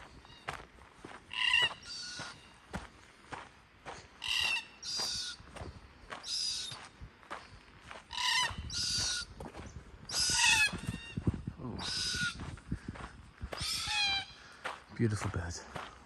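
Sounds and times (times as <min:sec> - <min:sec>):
footsteps on a bush track: 0:00.0 - 0:16.0
bird giving harsh calls: 0:01.3 - 0:02.6, 0:04.2 - 0:05.5, 0:06.2 - 0:06.8, 0:08.1 - 0:09.3, 0:10.1 - 0:12.4, 0:13.6 - 0:14.4.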